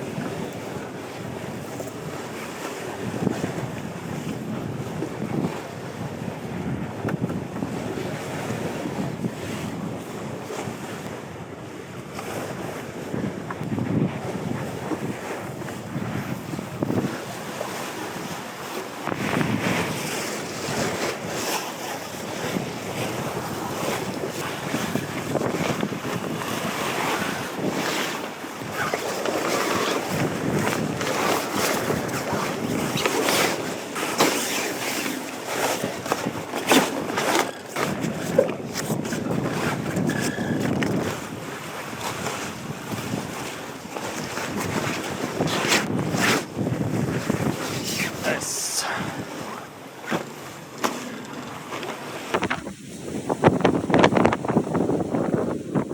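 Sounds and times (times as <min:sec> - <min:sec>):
wind buffeting microphone: 0:00.0 - 0:33.8, 0:35.8 - 0:49.6, 0:52.0 - 0:55.9
sea water splashing against hull: 0:11.9 - 0:55.9.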